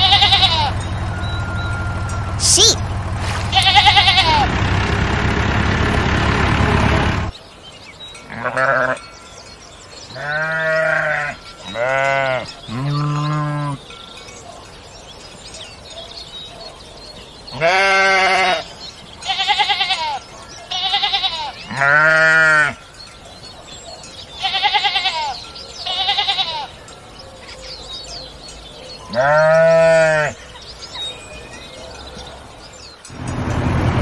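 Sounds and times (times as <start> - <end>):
sheep bleating: 0.0 - 1.8, 3.5 - 4.5, 8.3 - 9.0, 10.1 - 13.8, 17.5 - 22.8, 24.4 - 26.8, 29.1 - 30.4
loud rough buzzing: 0.0 - 7.3, 33.1 - 34.0.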